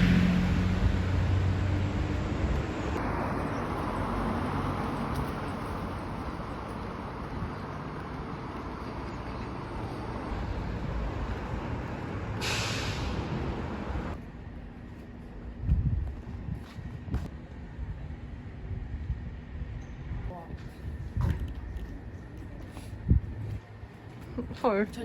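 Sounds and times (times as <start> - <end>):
vehicle rumble: 0.0 - 25.0
short loud hiss: 12.4 - 13.1.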